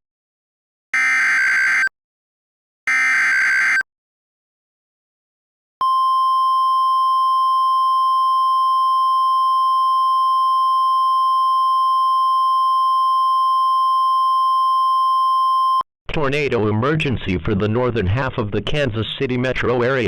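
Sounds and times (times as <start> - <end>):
steady alarm tone: 1.0 - 1.9, 2.9 - 3.8.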